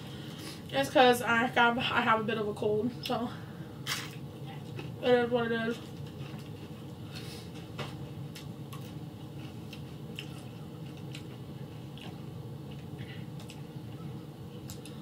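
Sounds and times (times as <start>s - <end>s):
person chewing crunchy chips: 8.4s - 13.7s.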